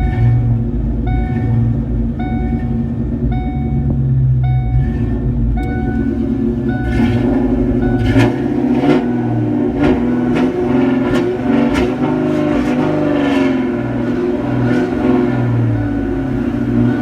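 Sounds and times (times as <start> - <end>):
sharp engine taps: 0.0 - 12.9
car engine running: 0.0 - 17.0.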